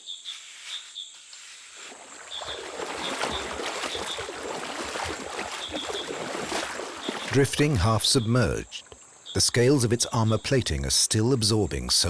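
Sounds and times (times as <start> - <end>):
water sloshing and splashing: 1.8 - 10.6.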